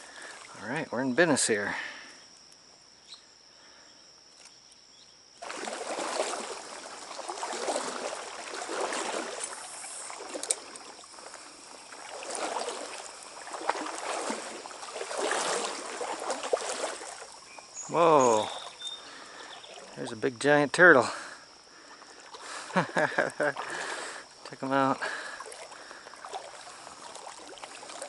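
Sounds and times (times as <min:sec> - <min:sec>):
wading through water: 0:00.0 - 0:01.9, 0:05.4 - 0:28.0
light splashes: 0:05.4 - 0:20.2, 0:20.9 - 0:28.0.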